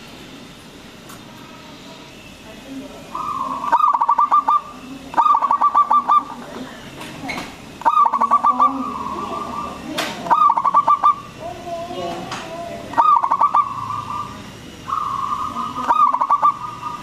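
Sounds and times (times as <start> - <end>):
dove cooing: 3.1 - 6.6, 7.8 - 11.6, 12.7 - 17.0.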